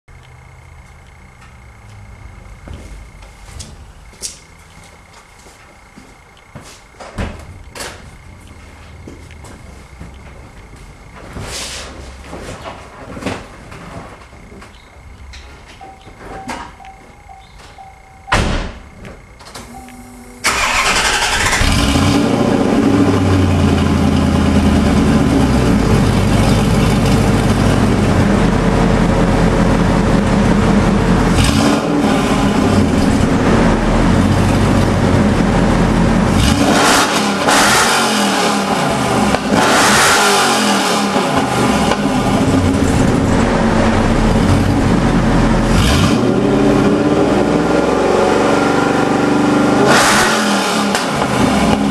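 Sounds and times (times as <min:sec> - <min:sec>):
car engine revving: 0:19.8 - 0:51.9.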